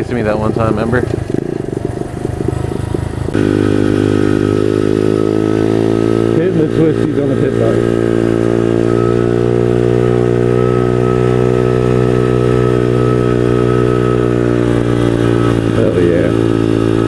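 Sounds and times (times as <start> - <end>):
small motorbike engine running: 0.0 - 17.0.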